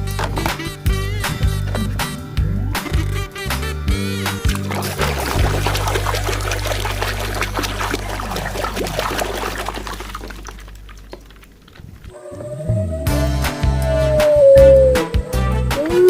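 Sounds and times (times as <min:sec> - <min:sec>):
water pouring and splashing: 0:04.2 - 0:12.2.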